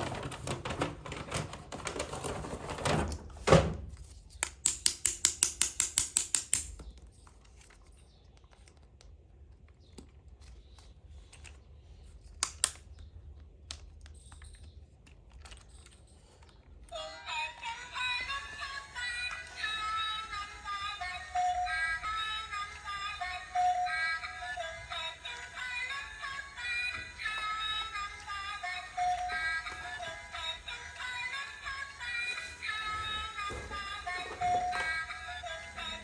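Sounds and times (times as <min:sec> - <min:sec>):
plastic toy pieces clicking: 0:04.4 - 0:09.2, 0:12.2 - 0:16.9.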